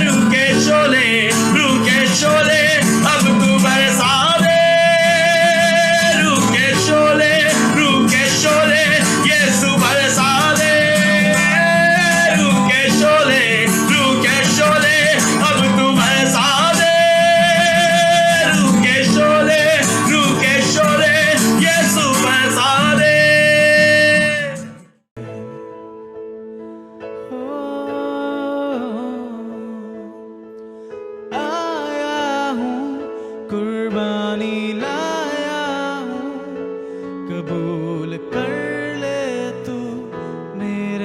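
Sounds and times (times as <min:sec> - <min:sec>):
live worship band music: 0:00.0 - 0:25.7.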